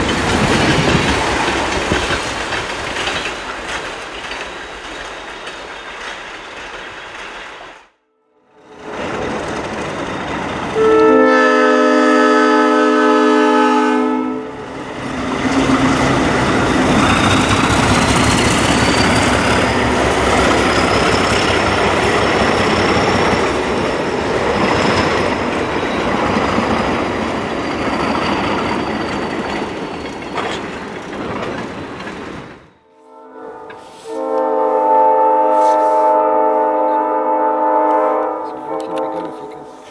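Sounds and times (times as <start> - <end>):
locomotive engines and wheels rumbling: 0.0 - 11.3, 14.5 - 39.9
locomotive air horn blast: 10.8 - 14.7, 32.8 - 39.9.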